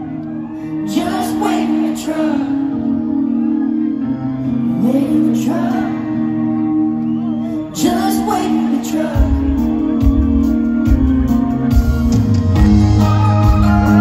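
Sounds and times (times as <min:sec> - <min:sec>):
live country band: 0:00.0 - 0:14.0
woman singing: 0:00.8 - 0:06.6, 0:07.6 - 0:10.6
heavy low drum beats: 0:09.2 - 0:14.0.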